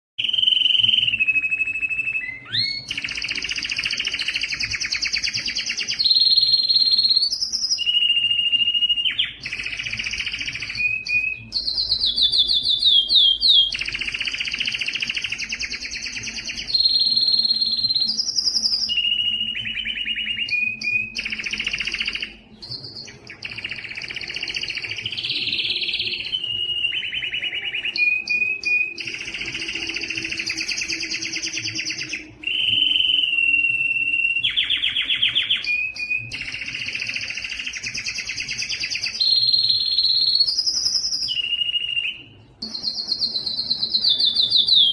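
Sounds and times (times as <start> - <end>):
canary singing: 0.2 - 44.9.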